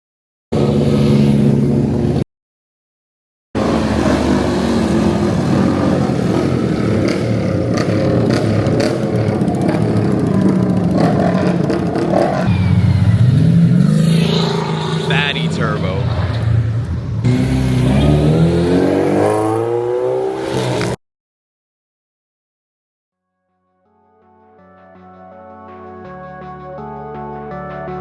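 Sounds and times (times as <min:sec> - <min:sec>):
car engines running loudly: 0:00.6 - 0:02.2, 0:03.6 - 0:21.0.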